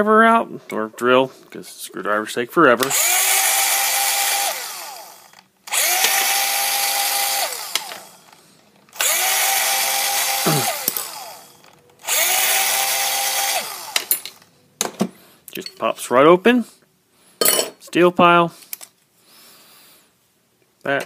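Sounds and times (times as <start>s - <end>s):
power drill running in spurts: 2.8s - 14.3s.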